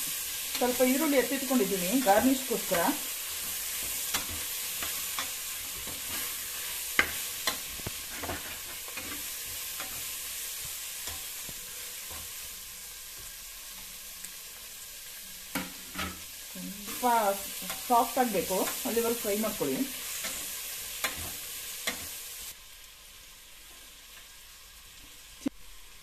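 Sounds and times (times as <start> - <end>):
vegetables sizzling in hot oil: 0.0 - 26.0
spatula scraping and clinking on pot: 3.8 - 10.1.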